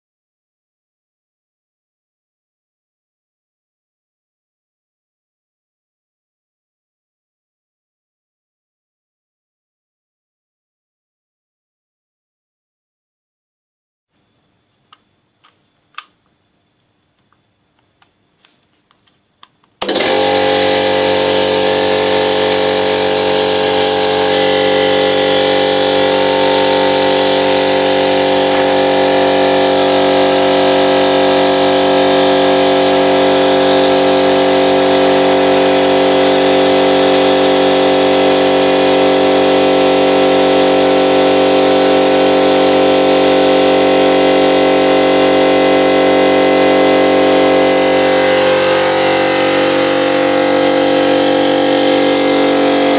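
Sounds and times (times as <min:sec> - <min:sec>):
air compressor running: 0:19.8 - 0:52.9.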